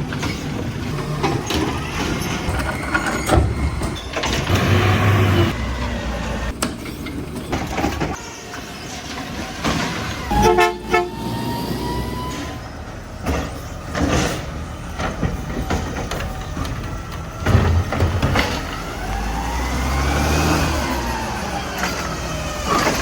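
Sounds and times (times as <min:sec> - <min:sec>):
garbage truck engine and packer whine: 0:00.0 - 0:23.0
clanks and knocks: 0:06.5 - 0:08.2, 0:13.2 - 0:18.8.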